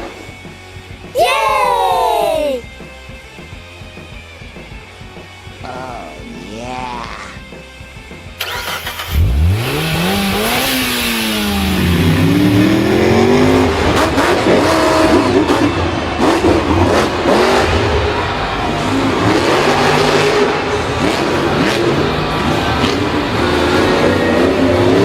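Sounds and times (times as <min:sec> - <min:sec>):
engine crackling and rattling: 0:08.4 - 0:25.0
vehicle engine revving: 0:08.4 - 0:25.0.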